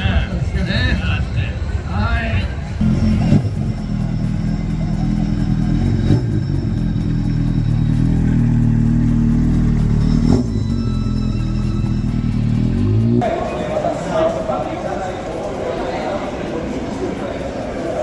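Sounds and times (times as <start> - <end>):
vehicle engine running: 2.5 - 13.3.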